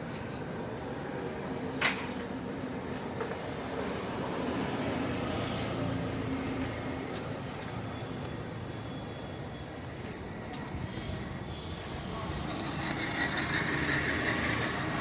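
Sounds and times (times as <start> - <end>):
motor vehicle running: 12.3 - 15.0.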